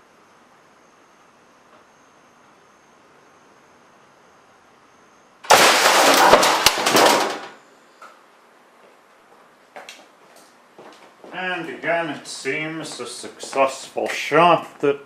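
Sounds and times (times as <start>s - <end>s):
sharp cracks: 5.4s - 7.6s.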